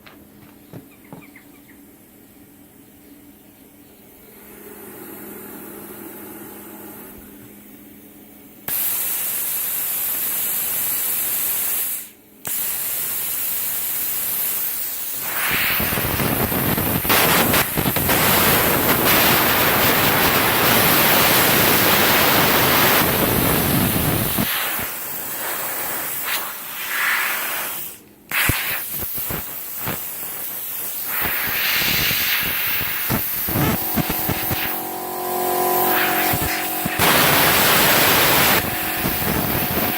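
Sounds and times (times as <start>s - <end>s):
plasma cutter air hiss: 8.6s - 39.9s
crackling electric arc: 8.7s - 39.9s.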